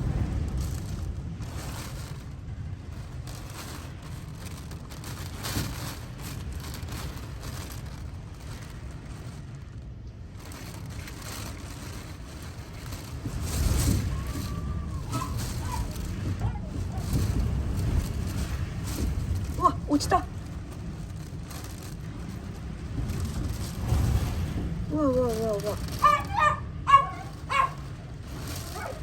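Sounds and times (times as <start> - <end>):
rain: 0.0 - 29.0
strong wind gusting on microphone: 0.0 - 29.0.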